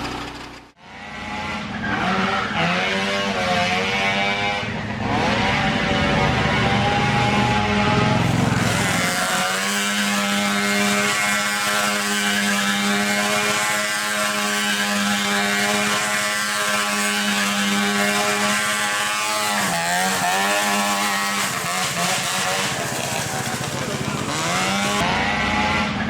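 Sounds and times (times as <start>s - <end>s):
small petrol engine running: 0.0s - 26.0s.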